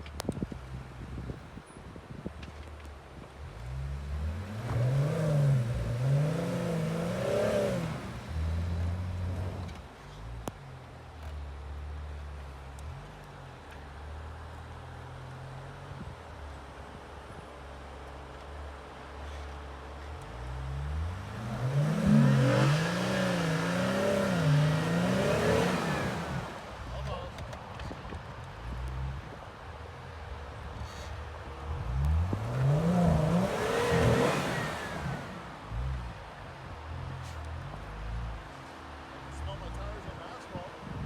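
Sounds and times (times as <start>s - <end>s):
car engine revving: 3.7s - 9.8s, 20.6s - 27.2s, 31.6s - 36.4s.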